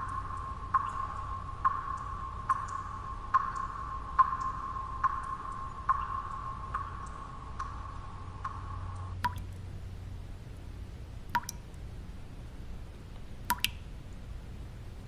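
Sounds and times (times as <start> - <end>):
water drops plinking: 0.0 - 14.2
low white noise: 0.0 - 15.0.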